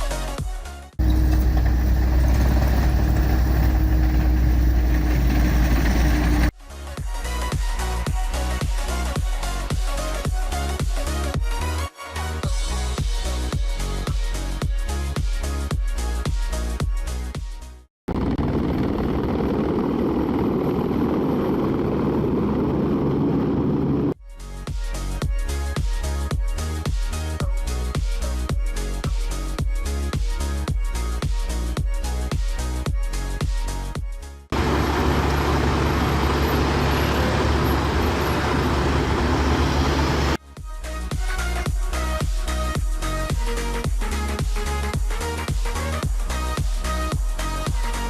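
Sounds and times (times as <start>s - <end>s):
dense engine noise: 1.0s - 6.5s, 18.1s - 24.2s, 34.5s - 40.4s
vehicle rumble with low hum: 1.0s - 6.5s, 18.1s - 24.2s, 34.6s - 40.4s
electronic music with steady beat: 40.6s - 48.0s.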